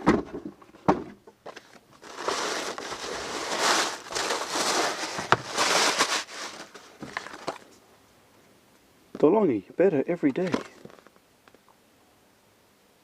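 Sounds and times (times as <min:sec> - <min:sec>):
packaging rustling and crinkling: 0:01.4 - 0:07.8, 0:10.4 - 0:11.2.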